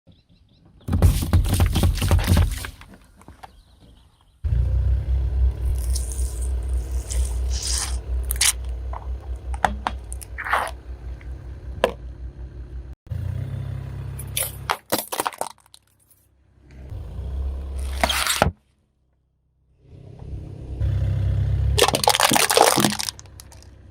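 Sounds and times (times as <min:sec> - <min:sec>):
tire rolling over objects: 0:00.5 - 0:18.7, 0:19.8 - 0:23.9
objects cracking and crunching: 0:05.7 - 0:10.8, 0:14.4 - 0:16.2, 0:21.8 - 0:23.7.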